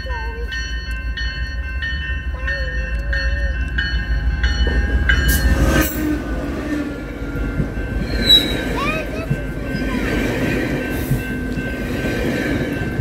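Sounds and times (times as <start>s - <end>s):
locomotive engine rumble: 0.0s - 13.0s
train bell ringing: 0.0s - 13.0s
train wheels rolling: 0.2s - 13.0s
locomotive rushing past: 3.2s - 13.0s.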